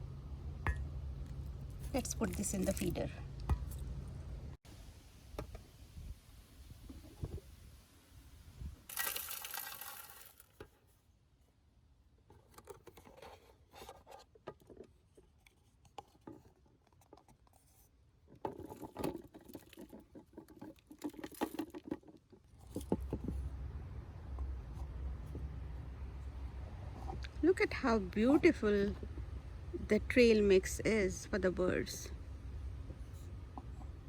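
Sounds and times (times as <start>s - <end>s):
seed rattling in plastic feeder: 8.9s - 10.8s, 18.3s - 23.2s.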